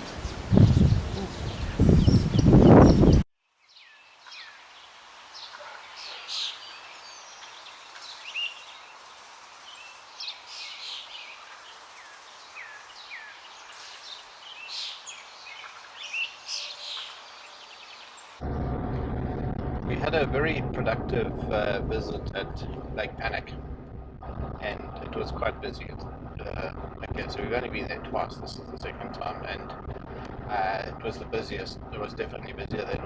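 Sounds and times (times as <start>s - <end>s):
birds chirping and whistling: 0.0s - 4.6s, 5.4s - 8.8s, 9.7s - 18.4s
faint outdoor air hiss: 0.0s - 18.4s, 24.6s - 33.0s.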